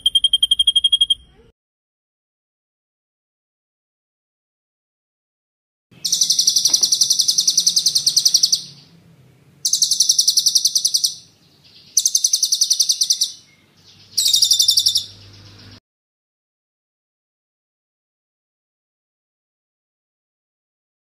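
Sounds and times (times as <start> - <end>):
songbird trilling: 6.0 - 9.0, 9.6 - 15.8.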